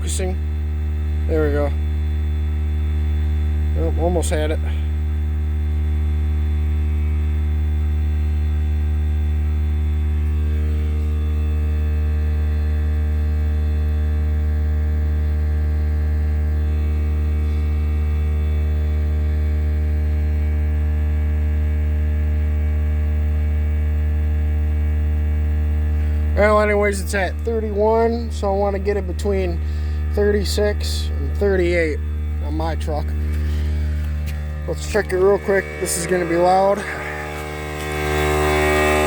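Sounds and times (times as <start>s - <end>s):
air compressor humming: 0.0s - 39.0s
higher tone: 27.3s - 39.0s.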